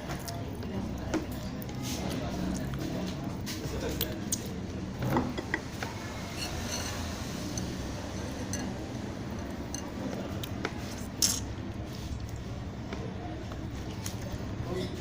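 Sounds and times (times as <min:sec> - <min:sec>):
spoon clinking against bowl: 0:06.4 - 0:09.9.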